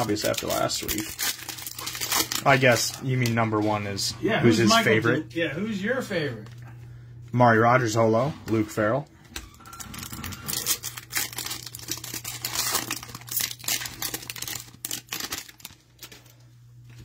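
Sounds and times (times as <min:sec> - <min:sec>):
wrapper tearing and crinkling: 0:00.0 - 0:03.4, 0:09.7 - 0:16.4.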